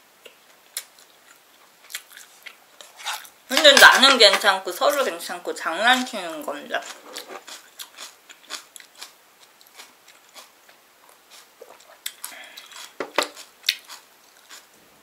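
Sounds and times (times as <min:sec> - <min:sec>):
quiet chewing: 0:00.2 - 0:03.3, 0:06.8 - 0:14.8.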